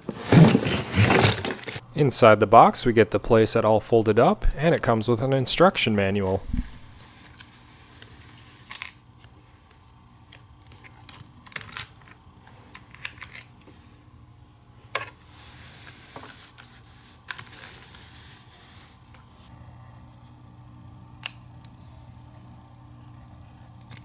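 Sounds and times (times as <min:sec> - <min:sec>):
packaging rustling: 0:00.0 - 0:01.8
faint low hum: 0:00.2 - 0:07.0.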